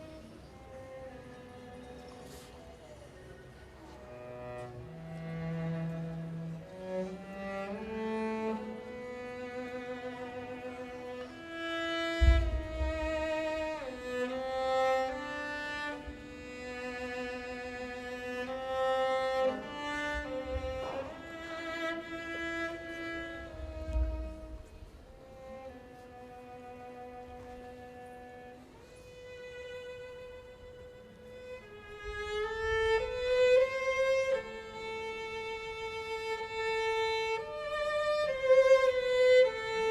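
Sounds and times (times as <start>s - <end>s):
cello and string orchestra: 0.0s - 39.9s
low thump: 12.1s - 13.3s.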